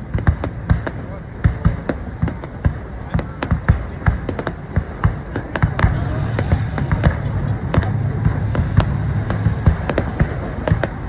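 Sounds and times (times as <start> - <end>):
fireworks bangs and pops: 0.0 - 11.0
low steady rumble: 0.0 - 11.0.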